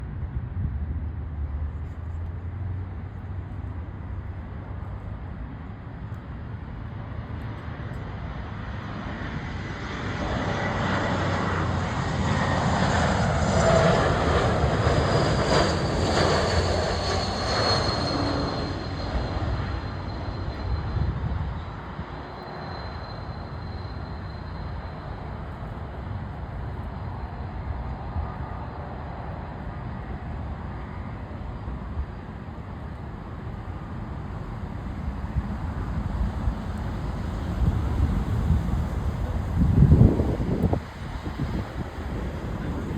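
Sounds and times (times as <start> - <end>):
jet airliner passing by: 0.0 - 42.9
high engine whine: 1.3 - 42.9.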